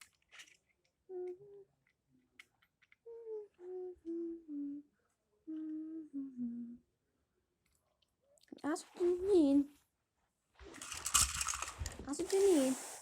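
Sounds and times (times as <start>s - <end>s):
person humming: 1.1s - 1.7s, 3.0s - 6.9s.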